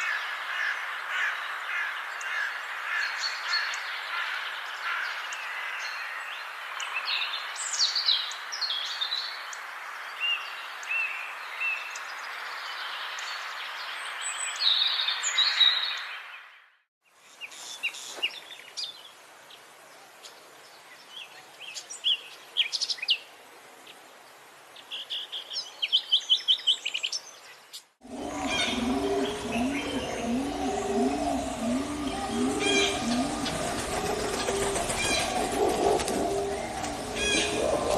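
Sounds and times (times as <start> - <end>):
songbirds singing: 0.0 - 16.6, 17.2 - 37.9
low repeated cooing: 28.0 - 37.9
steady rushing background: 28.0 - 37.9.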